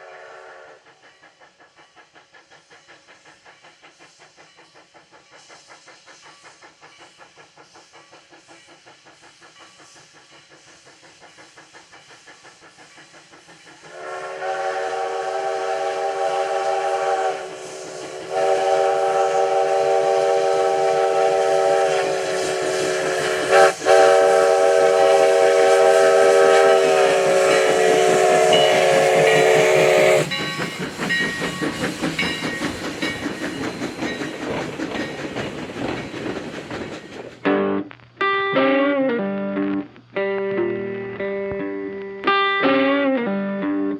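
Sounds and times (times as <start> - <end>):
steam locomotive running: 0.0 - 43.9
steam whistle blast: 13.9 - 30.6.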